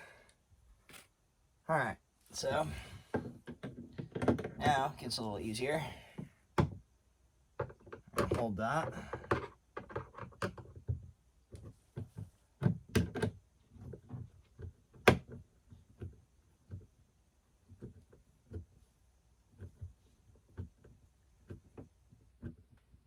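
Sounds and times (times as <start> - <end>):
knocks and taps of parts handled: 3.1 - 4.6, 6.2 - 6.9, 7.5 - 16.9.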